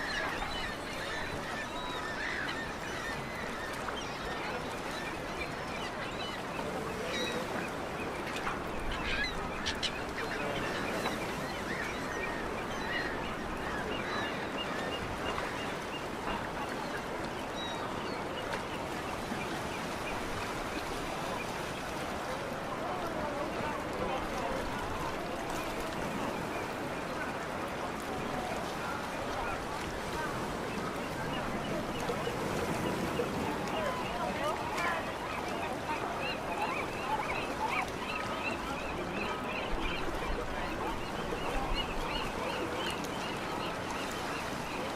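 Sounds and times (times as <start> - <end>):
waterbirds calling: 0.0 - 44.9.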